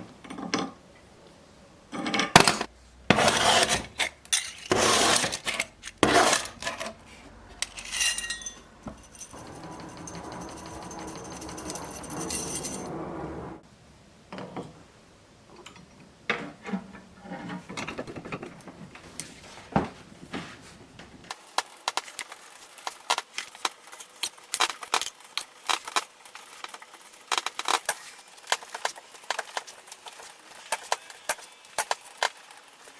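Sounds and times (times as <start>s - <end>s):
small metal pieces clinking: 4.3s - 4.7s, 7.6s - 12.9s.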